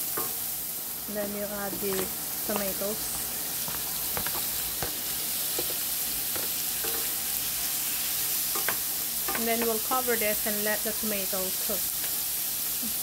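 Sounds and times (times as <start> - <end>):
food sizzling in a frying pan: 0.0 - 13.0
wooden spoon scraping: 1.7 - 7.2
spoon knocking against pan: 8.5 - 9.8.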